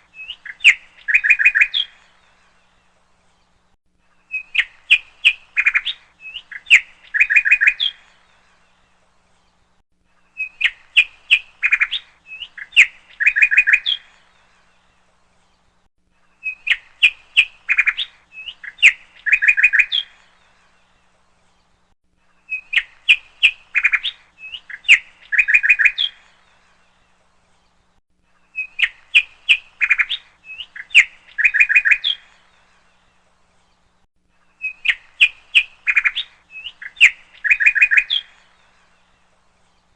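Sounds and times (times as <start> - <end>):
bird chirps and twitters: 0.0 - 2.6, 4.2 - 8.5, 10.2 - 15.7, 16.3 - 27.7, 28.4 - 39.9.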